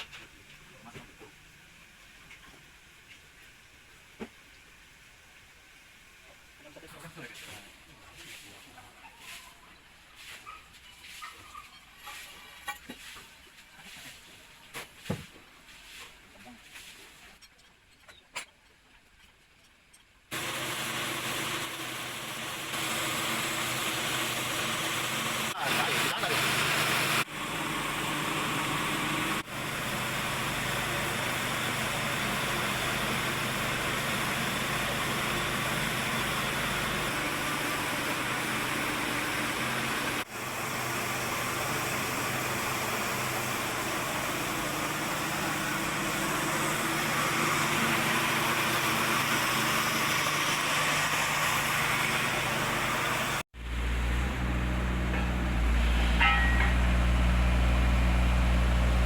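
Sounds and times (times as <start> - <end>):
machinery running: 20.4 - 59.0
deep engine-like hum: 43.6 - 59.0.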